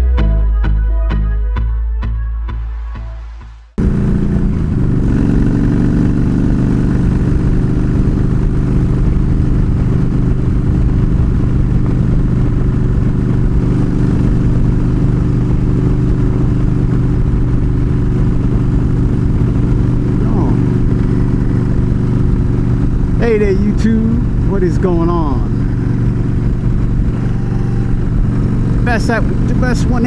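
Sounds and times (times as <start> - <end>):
motorcycle engine running: 3.8 - 30.0.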